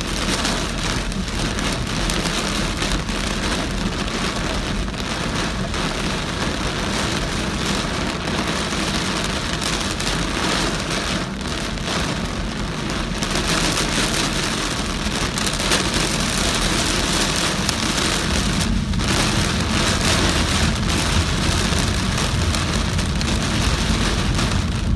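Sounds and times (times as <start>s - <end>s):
heavy rain on a car: 0.0s - 24.9s
road and tyre rumble: 0.0s - 24.9s.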